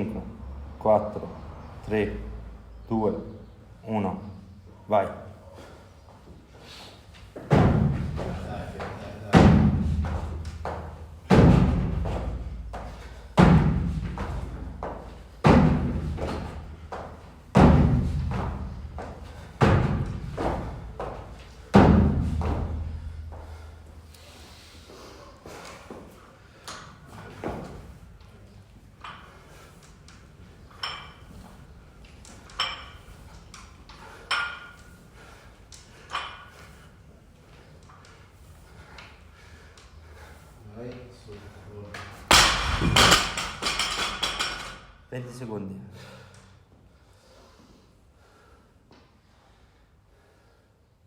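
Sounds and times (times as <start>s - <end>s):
gym equipment thudding on floor: 9.3s - 12.8s, 13.4s - 16.6s, 17.5s - 23.1s, 42.3s - 44.8s.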